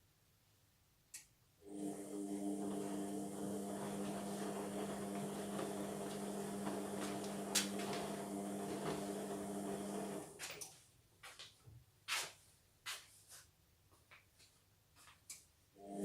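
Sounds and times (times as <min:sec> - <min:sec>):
washing machine motor hum: 0:01.6 - 0:10.5, 0:15.8 - 0:16.0.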